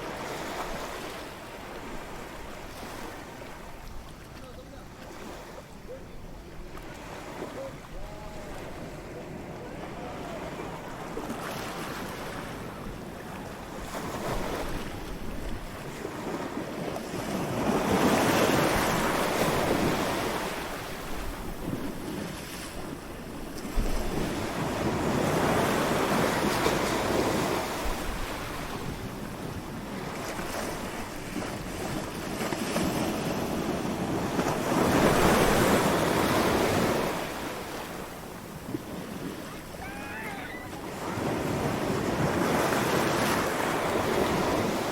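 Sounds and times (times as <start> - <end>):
ocean waves washing onto beach: 0.0 - 44.9.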